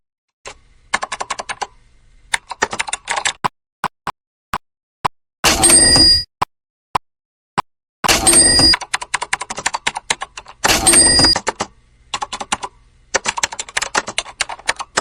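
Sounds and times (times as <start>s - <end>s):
rapid small sharp clicks: 8.8s - 15.0s.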